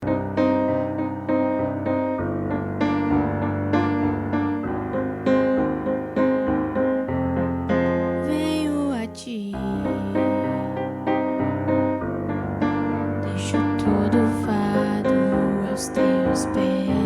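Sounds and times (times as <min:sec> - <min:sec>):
keyboard piano music: 0:00.0 - 0:17.0
person's voice: 0:08.0 - 0:11.0, 0:13.2 - 0:17.0.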